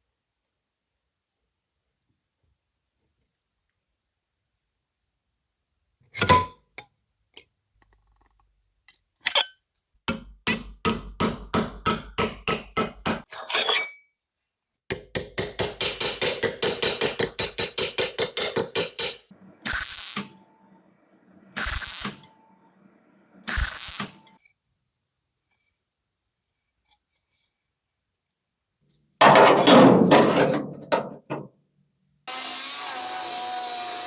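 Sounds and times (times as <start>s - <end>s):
short noisy bursts: 19.4s - 24.3s.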